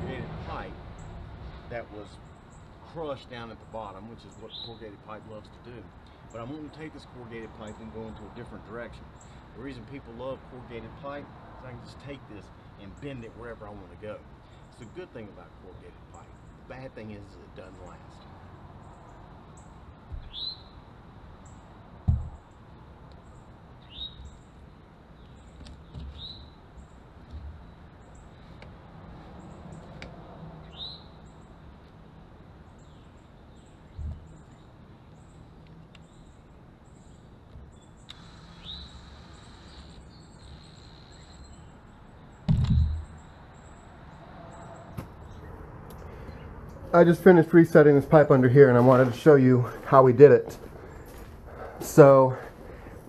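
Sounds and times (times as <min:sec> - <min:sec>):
birds chirping: 0:00.0 - 0:53.0
dull thumps: 0:22.0 - 0:22.4, 0:33.9 - 0:34.3, 0:42.5 - 0:43.2.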